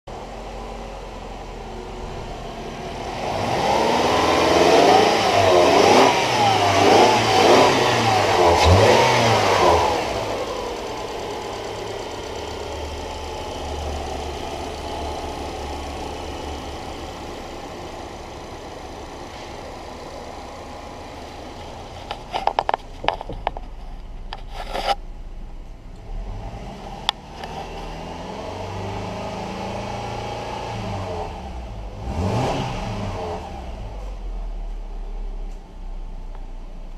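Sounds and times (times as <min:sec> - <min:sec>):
car engine revving and idling: 0:00.1 - 0:36.9
sharp clicks and knocks: 0:21.6 - 0:25.0.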